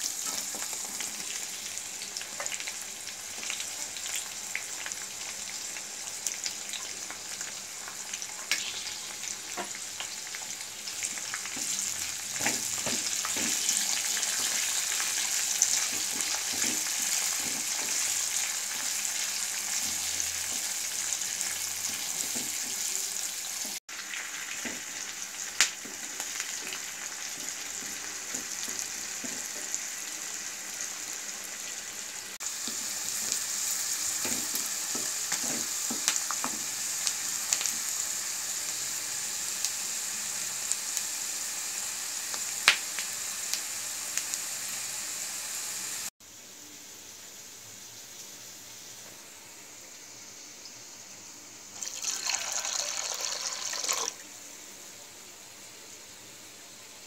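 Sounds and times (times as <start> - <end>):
oil sizzling in a pan: 0.0 - 57.0
spatula scraping a pan: 12.4 - 18.3.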